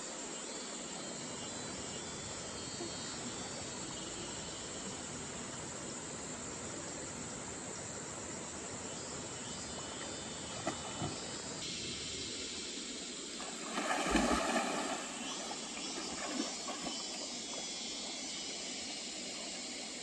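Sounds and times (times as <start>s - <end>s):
high insect buzz: 0.0s - 20.0s
stream water rushing: 13.4s - 20.0s.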